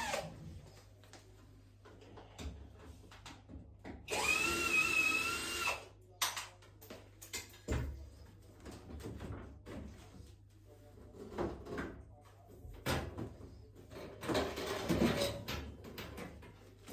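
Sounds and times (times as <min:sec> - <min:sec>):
power drill whine: 0:04.1 - 0:05.8.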